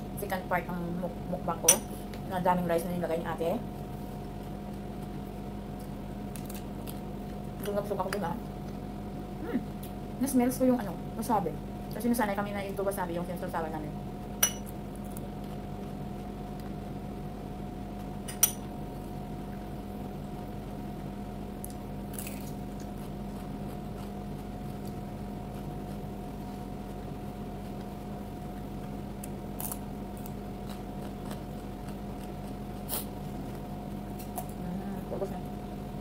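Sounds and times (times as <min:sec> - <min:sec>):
steady low hum: 0:00.0 - 0:36.0
chewing raw vegetables: 0:21.6 - 0:34.7.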